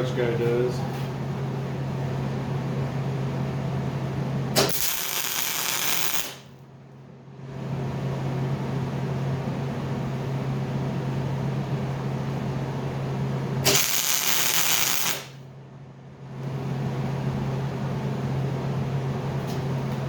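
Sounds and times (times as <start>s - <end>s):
welder electrical hum: 0.0s - 20.0s
welding arc sizzle: 4.5s - 6.6s, 13.6s - 15.5s
welder click: 4.6s - 6.4s, 13.7s - 15.4s.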